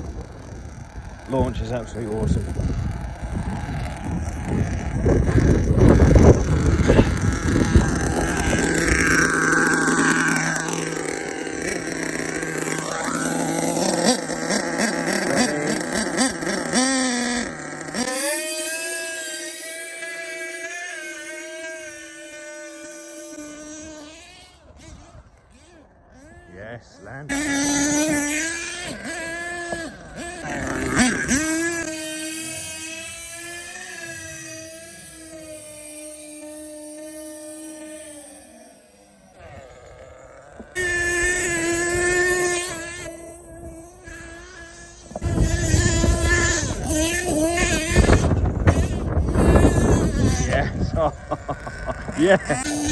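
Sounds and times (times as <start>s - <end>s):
wind rumble on microphone: 0.0s - 9.4s, 45.0s - 52.2s
rc truck engine revving: 0.0s - 52.9s.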